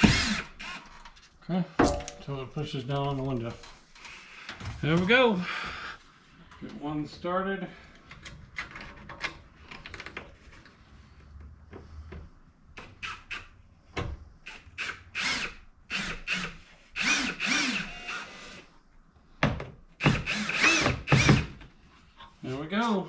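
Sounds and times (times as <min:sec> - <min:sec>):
power drill driving screws: 0:00.0 - 0:01.0, 0:14.5 - 0:18.6, 0:20.0 - 0:21.6.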